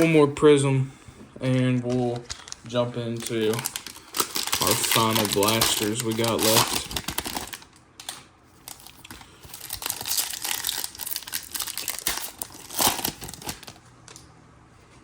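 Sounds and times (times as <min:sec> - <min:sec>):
foil wrapper crinkling: 0:01.8 - 0:14.2
wrapper tearing open: 0:03.2 - 0:14.2.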